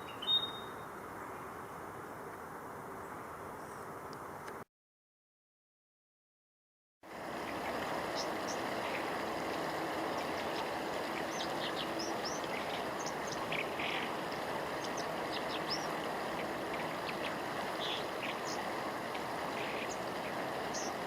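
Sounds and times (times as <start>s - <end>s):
bird singing high notes: 0.0s - 0.9s
mountain stream rushing: 7.1s - 21.0s.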